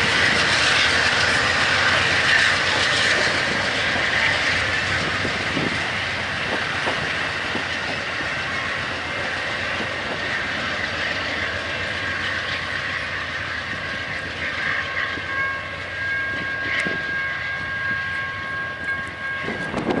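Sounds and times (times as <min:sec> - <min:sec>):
train cars clattering over rails: 0:00.0 - 0:15.8.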